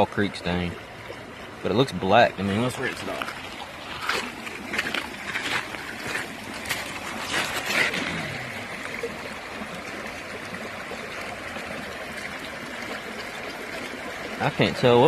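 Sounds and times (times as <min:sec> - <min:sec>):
creek water flowing: 0:00.0 - 0:15.0
splashes in water: 0:02.6 - 0:09.1.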